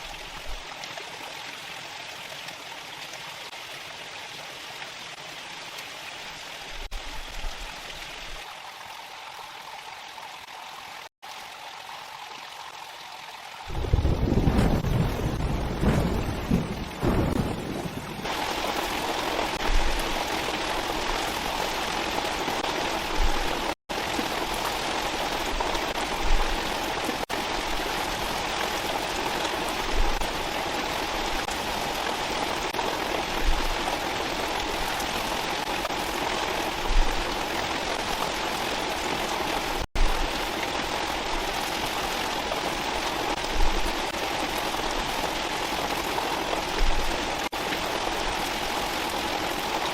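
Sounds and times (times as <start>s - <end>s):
heavy rain: 10.1s - 49.9s.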